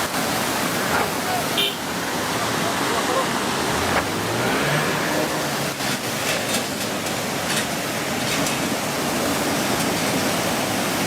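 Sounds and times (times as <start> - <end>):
floodwater rushing: 0.0 - 11.0
water splashing: 0.0 - 11.0.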